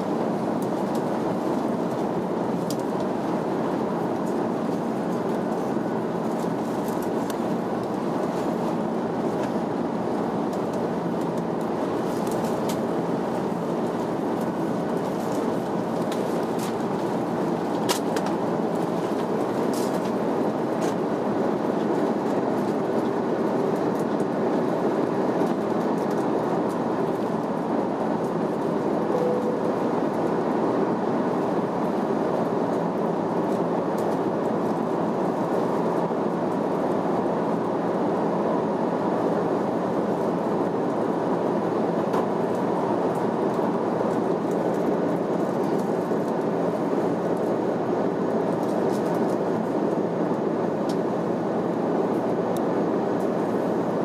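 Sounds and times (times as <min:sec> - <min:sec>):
jet engine roar: 0:00.0 - 0:34.5.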